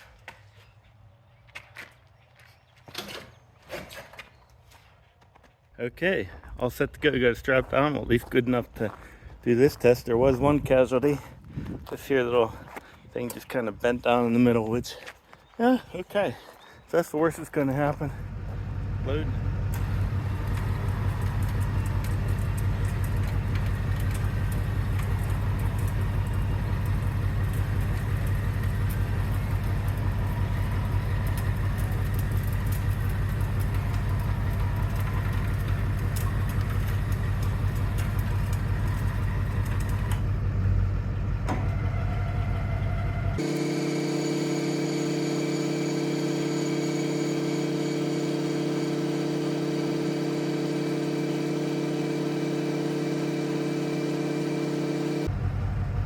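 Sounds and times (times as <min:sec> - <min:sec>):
motor humming: 0:18.2 - 0:40.4, 0:43.1 - 0:55.3.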